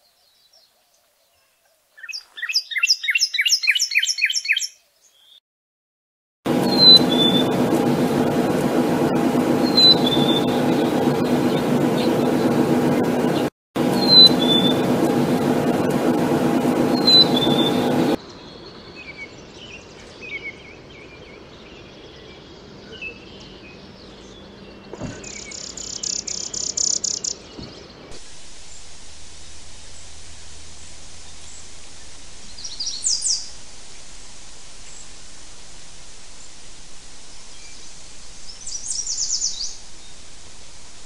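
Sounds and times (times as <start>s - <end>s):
steady hum: 6.5s - 18.2s, 28.0s - 41.0s
two-note whistled bird song: 6.7s - 7.5s, 9.6s - 10.6s, 14.0s - 14.8s, 17.0s - 17.8s
bird chirps and dry trill: 23.0s - 28.0s.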